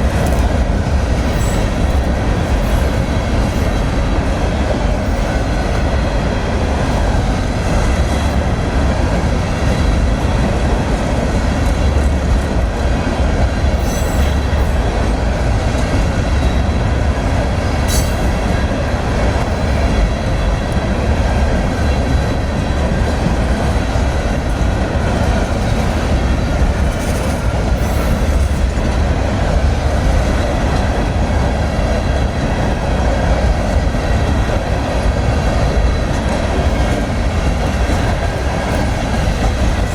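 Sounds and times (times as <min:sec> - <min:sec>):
freight train wheels rumbling on rail: 0:00.0 - 0:39.9
faint high wheel squeals: 0:13.8 - 0:14.8.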